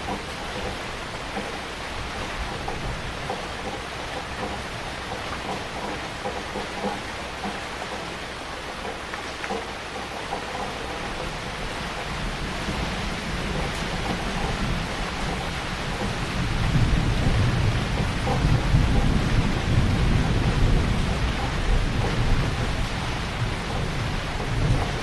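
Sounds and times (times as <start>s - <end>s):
heavy rain: 0.0s - 25.0s
thunder rumbling: 10.8s - 25.0s.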